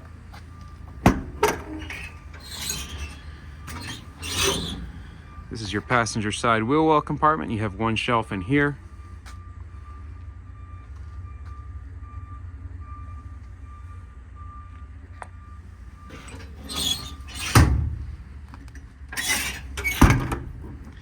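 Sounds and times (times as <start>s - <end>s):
metal door banging shut: 1.0s - 5.0s, 16.1s - 18.2s, 19.2s - 21.0s.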